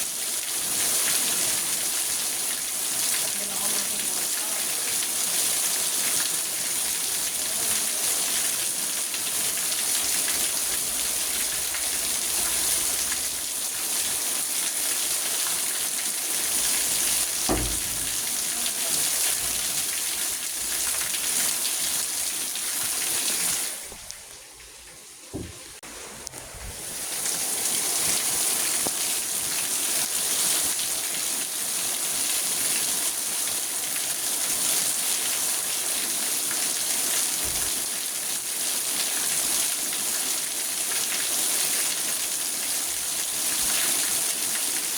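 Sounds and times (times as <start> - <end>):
rain pattering on a car: 0.0 - 26.4, 27.2 - 44.9
dull thump: 17.3 - 18.6, 25.3 - 25.8.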